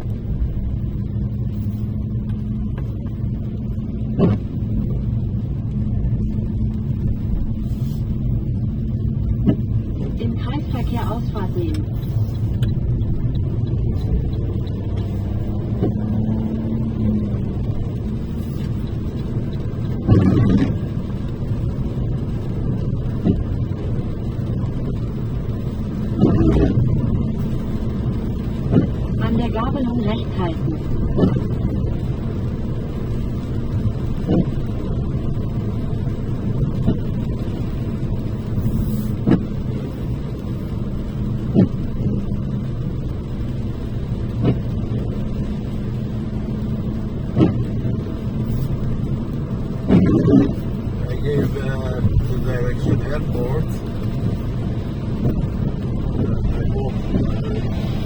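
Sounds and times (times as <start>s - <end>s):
car engine and tyre noise: 0.0s - 58.0s
short thumps: 4.1s - 5.0s, 9.3s - 16.4s.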